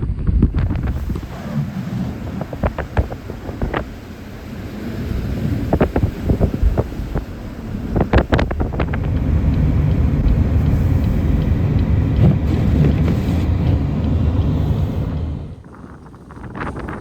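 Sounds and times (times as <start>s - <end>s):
blizzard wind buffeting microphone: 0.0s - 17.0s.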